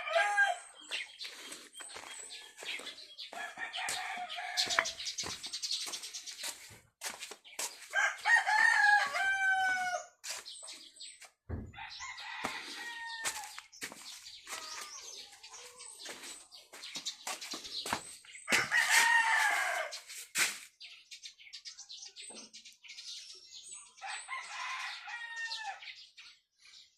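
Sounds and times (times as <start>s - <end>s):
rooster crowing: 0.0s - 0.7s, 3.3s - 5.0s, 8.0s - 10.2s, 11.8s - 13.6s, 18.5s - 20.0s.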